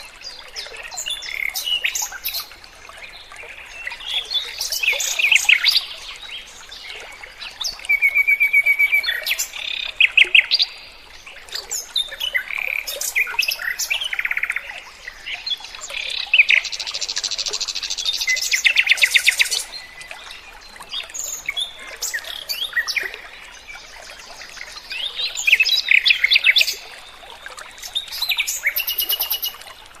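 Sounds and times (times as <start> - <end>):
songbird singing: 1.0 - 2.6, 7.4 - 29.8.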